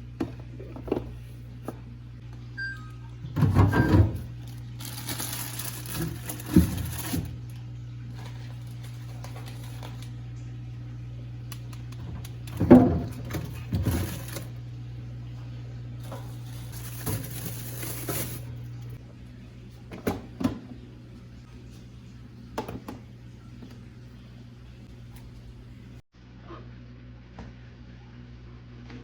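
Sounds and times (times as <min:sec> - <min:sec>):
kitchen items clattering on counter: 0:16.0 - 0:18.5.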